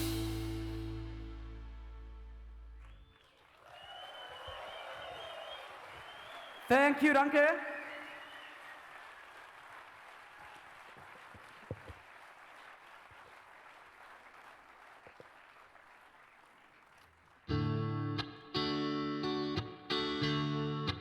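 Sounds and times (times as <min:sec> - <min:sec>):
distorted electric guitar chord: 0:00.0 - 0:02.8
audience applause: 0:02.8 - 0:17.5.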